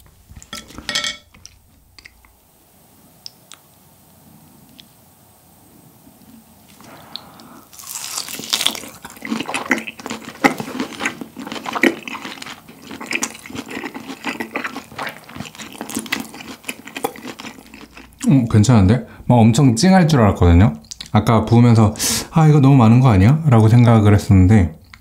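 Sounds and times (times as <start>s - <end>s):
wet smacking chewing: 6.7s - 18.3s.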